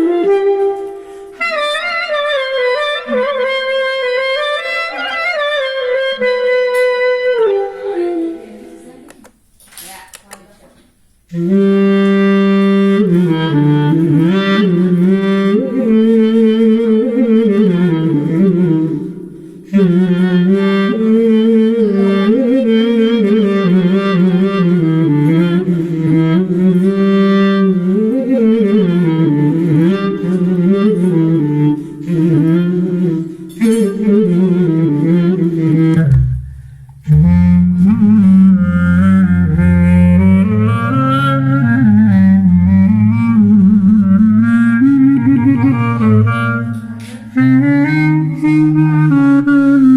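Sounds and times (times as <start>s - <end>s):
clarinet-like melody: 0.0s - 9.0s, 11.3s - 49.9s.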